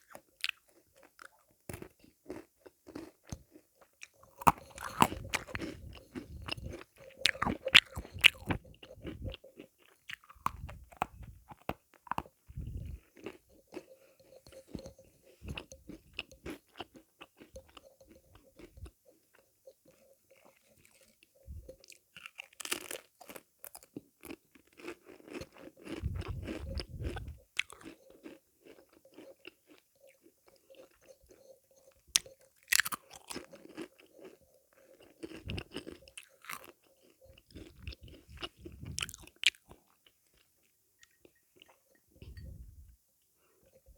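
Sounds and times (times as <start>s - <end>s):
crunching bites of sweets: 0.0s - 13.4s
chewing: 0.0s - 42.6s.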